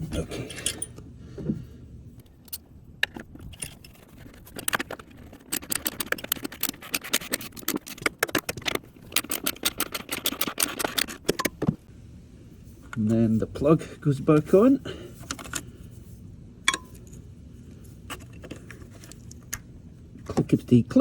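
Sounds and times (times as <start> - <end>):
metal tools rattling: 0.0 - 1.0, 2.4 - 11.7
hand ratchet clicking: 4.5 - 11.4.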